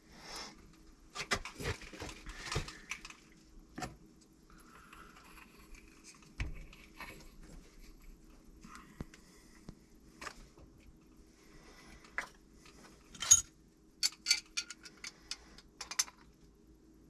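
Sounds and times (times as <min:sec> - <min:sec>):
faint steady hum: 0:00.0 - 0:17.0
metal tools clicking and knocking: 0:13.1 - 0:16.3.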